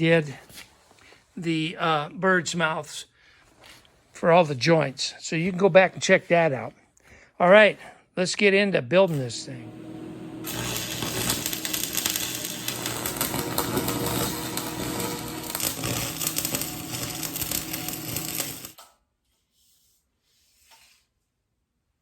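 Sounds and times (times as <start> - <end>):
faint hum: 9.1 - 18.4
welding arc crackling: 9.1 - 18.8.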